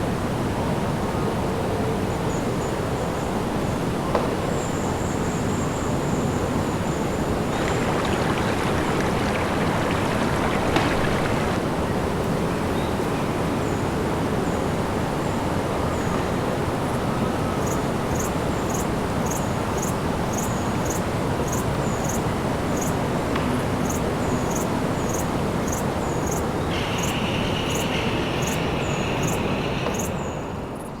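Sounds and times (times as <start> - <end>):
steady rushing noise: 7.5 - 11.7.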